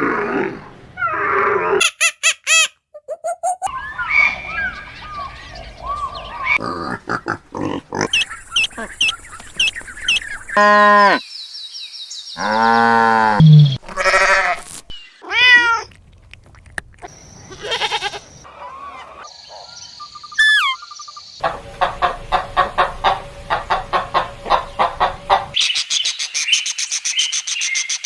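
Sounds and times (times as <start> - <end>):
animal cries and calls: 17.5 - 25.6.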